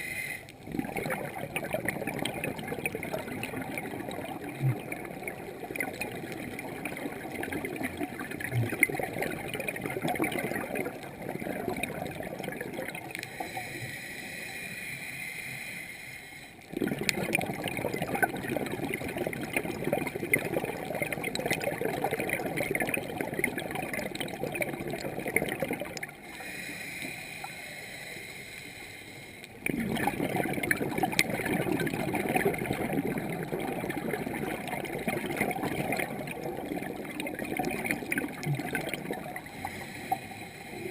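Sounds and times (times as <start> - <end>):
regulator hissing inhale: 0.0 - 0.5, 13.2 - 16.6, 26.2 - 29.6, 39.4 - 40.9
exhaled air bubbling underwater: 0.0 - 40.9.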